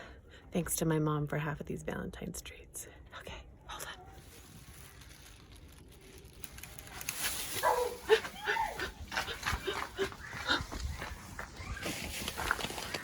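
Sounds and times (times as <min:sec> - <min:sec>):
dog barking: 0:07.6 - 0:08.2.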